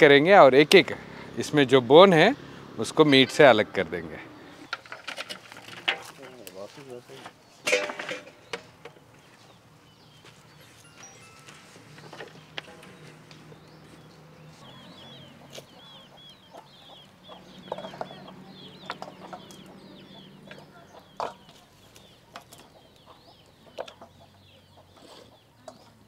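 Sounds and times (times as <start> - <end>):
bird chirping: 8.3 - 26.0.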